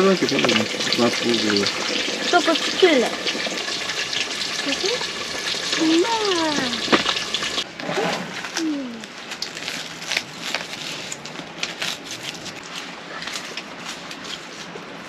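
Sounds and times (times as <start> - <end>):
meat sizzling in deep-frying oil: 0.0 - 7.6.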